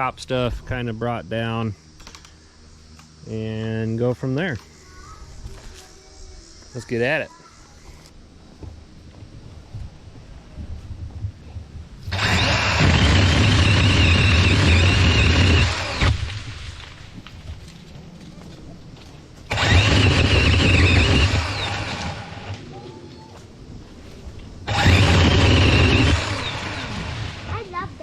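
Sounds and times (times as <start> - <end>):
pole saw motor whine: 12.1 - 16.4, 19.5 - 22.6, 24.6 - 27.5.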